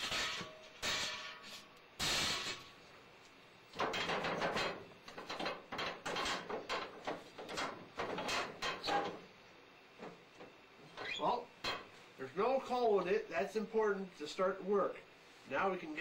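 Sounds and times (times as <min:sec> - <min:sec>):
furnace clanks and scrapes: 0:00.0 - 0:02.7, 0:03.7 - 0:09.3.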